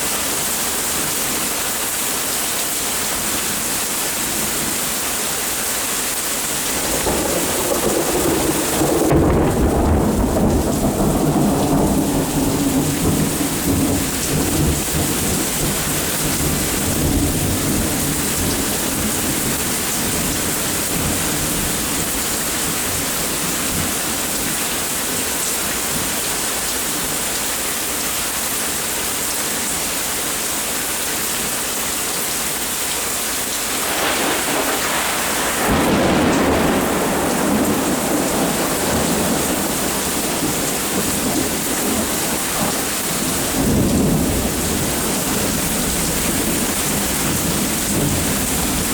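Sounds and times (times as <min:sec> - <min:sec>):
steady rain falling: 0:00.0 - 0:48.9
rolling thunder: 0:06.8 - 0:24.6, 0:33.7 - 0:48.9.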